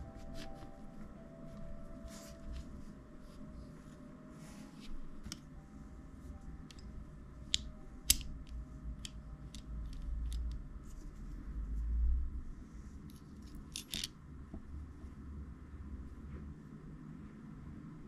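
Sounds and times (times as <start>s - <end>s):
small clicks and taps of parts: 7.5s - 10.6s, 13.4s - 14.6s
metal parts knocking together: 13.7s - 14.1s.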